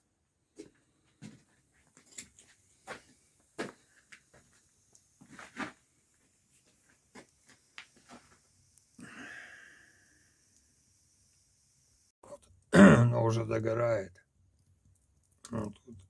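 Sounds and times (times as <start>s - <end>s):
wood fire crackling: 0.6s - 16.0s.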